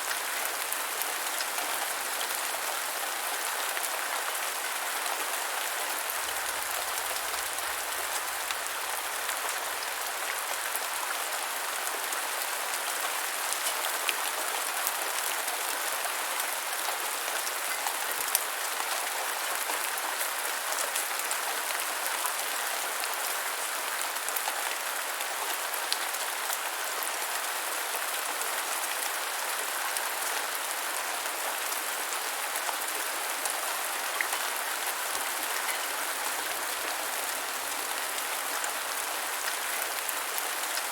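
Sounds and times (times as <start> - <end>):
rain falling on ground: 0.0 - 40.9.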